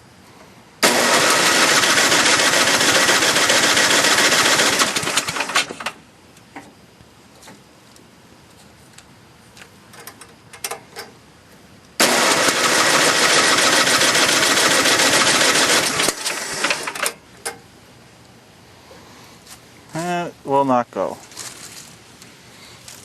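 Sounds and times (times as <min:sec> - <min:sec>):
engine starter cranking: 0:00.8 - 0:06.0, 0:12.0 - 0:17.6.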